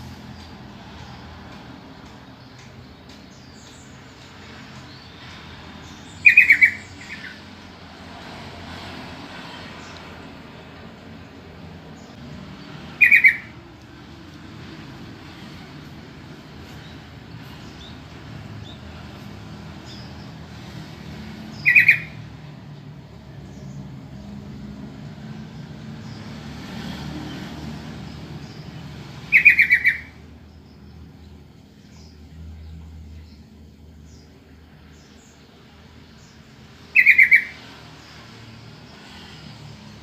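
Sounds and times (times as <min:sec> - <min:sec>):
bird calling quick notes: 0:13.0 - 0:13.5, 0:29.3 - 0:30.1.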